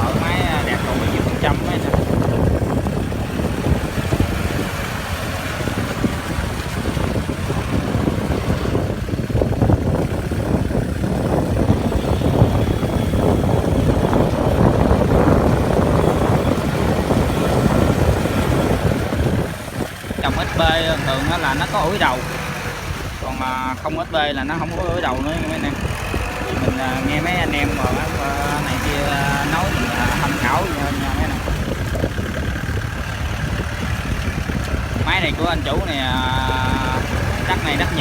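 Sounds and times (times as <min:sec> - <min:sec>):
diesel tractor engine running: 0:00.0 - 0:38.0
wind buffeting microphone: 0:00.0 - 0:38.0.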